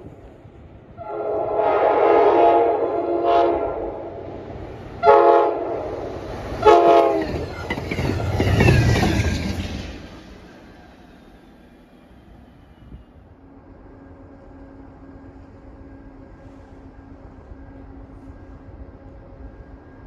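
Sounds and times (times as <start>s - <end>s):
train wheels rumbling past: 0.0s - 19.6s
train air horn blasts: 1.0s - 4.4s, 5.0s - 7.4s.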